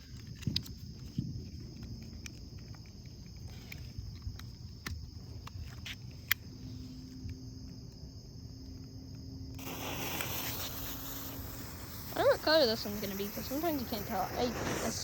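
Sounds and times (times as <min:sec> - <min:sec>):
smoke bomb hissing: 0:09.6 - 0:15.0.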